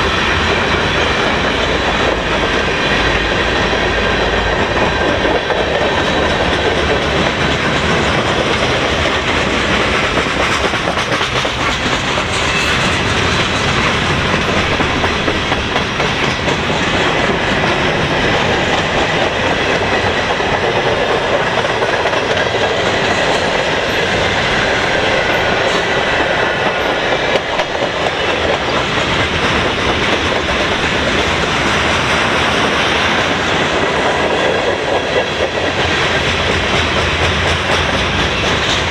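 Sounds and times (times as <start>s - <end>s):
steel wheels on rails: 0.0s - 38.9s.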